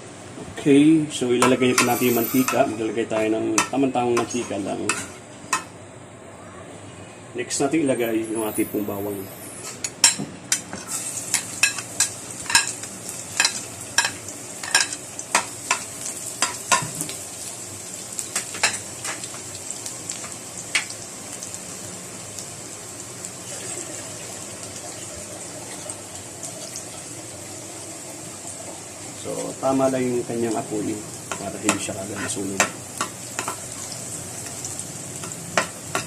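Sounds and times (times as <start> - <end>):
garlic sizzling in oil: 10.8 - 36.0
utensil scraping a pan: 31.7 - 32.6.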